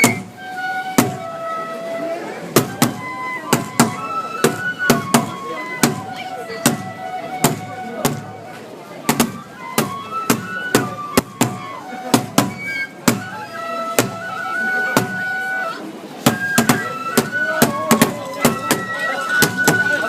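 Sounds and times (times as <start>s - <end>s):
bamboo flute melody: 0.0s - 20.0s
sharp percussion strikes: 9.1s - 13.3s, 16.2s - 20.0s.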